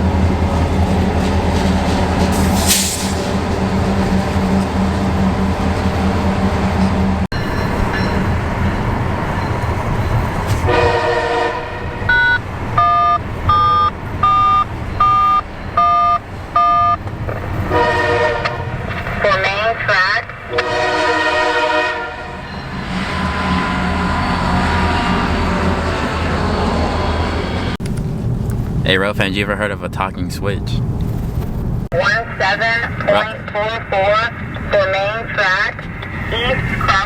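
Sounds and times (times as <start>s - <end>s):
locomotive air horn chord: 10.6s - 13.0s, 17.6s - 18.9s, 20.5s - 27.8s
car engine and road hum: 12.0s - 17.8s, 23.5s - 37.0s
short electronic beeps: 12.1s - 17.0s.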